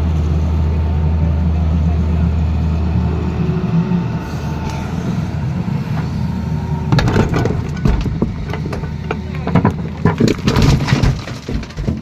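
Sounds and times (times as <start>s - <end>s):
excavator diesel engine running: 0.0s - 12.0s
bucket knocking and scraping road: 6.9s - 12.0s.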